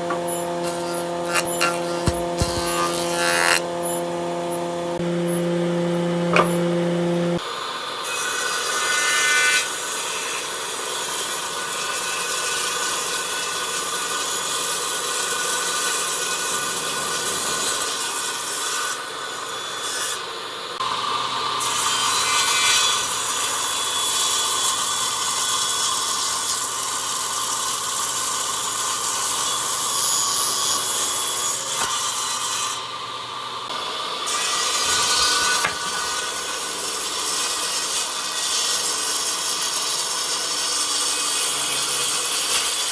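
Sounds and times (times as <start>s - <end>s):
power tool motor whine: 0.0s - 8.4s
rasping of wood being cut: 0.1s - 4.0s.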